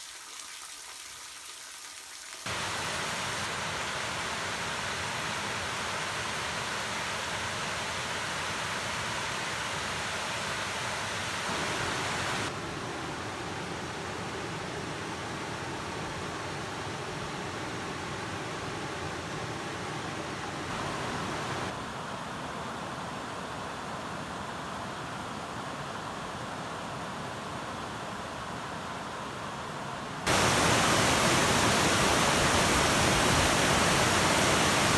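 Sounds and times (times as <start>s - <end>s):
waterfall pouring: 0.0s - 3.5s, 30.3s - 34.9s
waterfall rushing: 2.5s - 6.0s, 11.4s - 12.5s, 20.7s - 21.8s, 30.3s - 34.9s.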